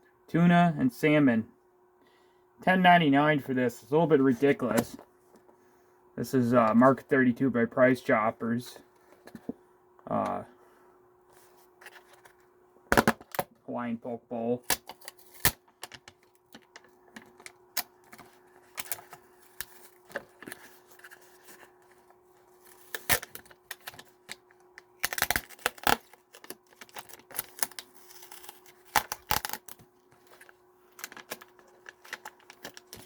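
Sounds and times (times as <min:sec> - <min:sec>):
faint steady hum: 0:00.0 - 0:33.0
plastic packaging crackling: 0:22.5 - 0:33.0.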